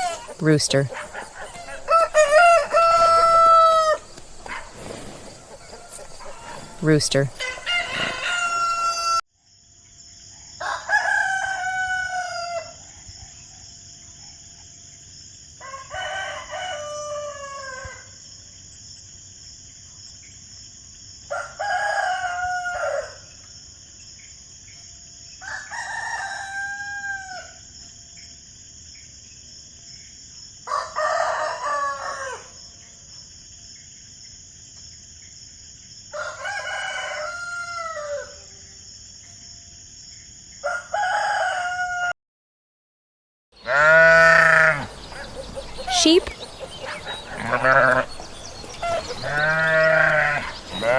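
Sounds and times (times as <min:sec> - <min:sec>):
rooster crowing: 0:00.0 - 0:09.2, 0:10.6 - 0:12.7, 0:15.6 - 0:17.8, 0:36.2 - 0:38.4, 0:40.6 - 0:42.1, 0:43.6 - 0:50.9
steady high-pitched hiss: 0:00.0 - 0:09.2.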